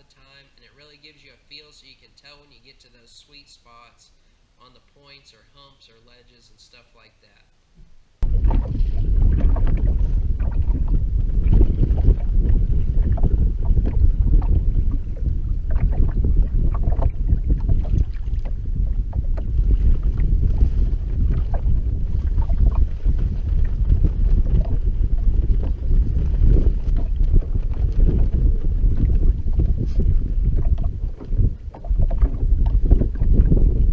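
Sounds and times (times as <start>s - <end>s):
wind buffeting microphone: 8.2s - 33.9s.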